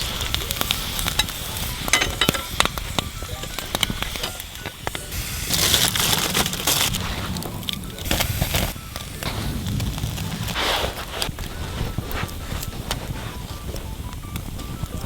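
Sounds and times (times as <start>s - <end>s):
campfire crackling and popping: 0.0s - 15.0s
food sizzling over fire: 0.0s - 15.0s.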